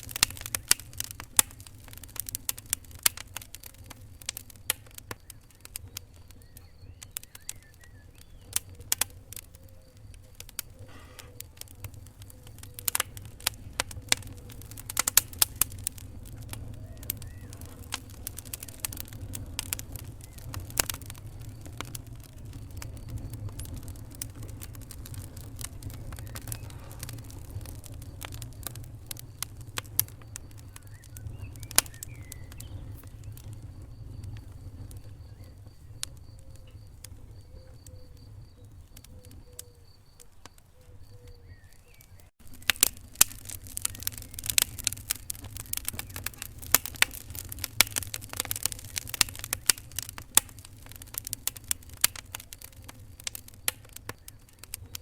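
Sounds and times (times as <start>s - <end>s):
wood fire crackling: 0.0s - 55.0s
faint high whistling tones: 3.9s - 13.3s, 15.7s - 42.3s.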